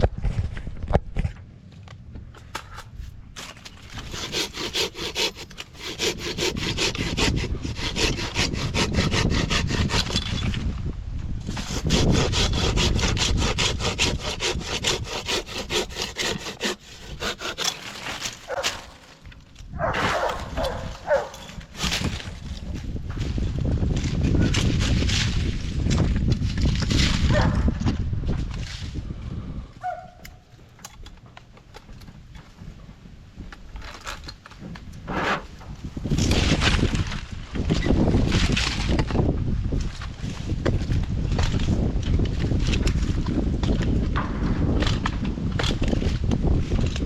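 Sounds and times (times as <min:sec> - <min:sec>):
hand saw rasping through wood: 0:03.9 - 0:10.4, 0:11.5 - 0:19.1, 0:20.0 - 0:22.5.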